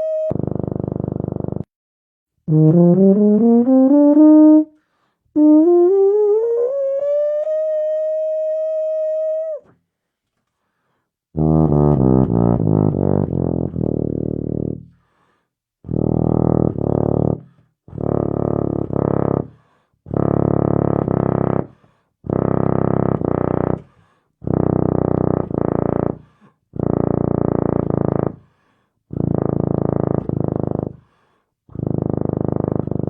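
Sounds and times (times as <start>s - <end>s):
tuba playing low notes: 0.0s - 1.7s, 2.5s - 9.6s, 11.4s - 14.9s, 15.9s - 23.8s, 24.4s - 28.4s, 29.1s - 31.0s, 31.7s - 33.0s
breaths: 4.8s - 5.3s, 9.9s - 11.2s, 14.9s - 15.6s, 17.4s - 17.8s, 19.5s - 20.0s, 21.7s - 22.2s, 23.8s - 24.4s, 26.2s - 26.7s, 28.4s - 29.1s, 30.9s - 31.6s.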